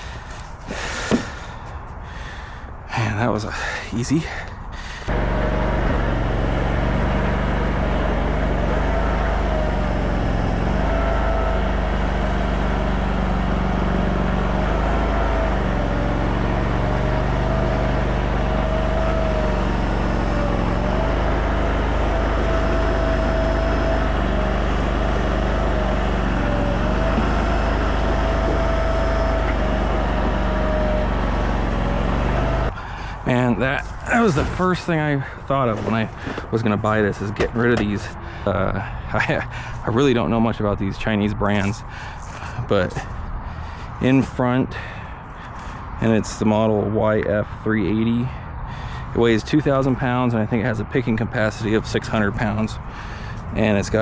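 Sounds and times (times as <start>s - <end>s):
gas engine running: 4.8s - 46.0s, 48.6s - 54.0s
whine rising and falling: 5.1s - 32.7s.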